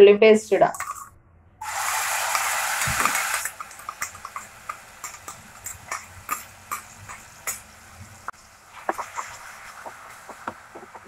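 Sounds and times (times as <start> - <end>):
paste sizzling in hot oil: 1.6 - 11.0
small pops and crackles: 2.8 - 7.7, 8.8 - 11.0.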